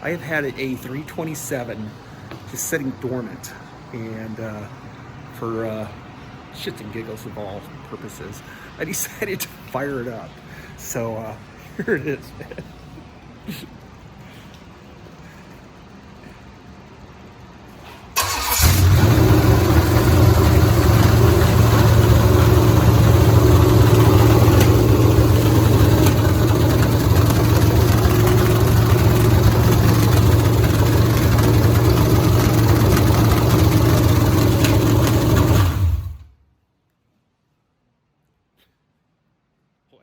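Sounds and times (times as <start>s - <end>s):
car engine running loud: 18.5s - 36.3s.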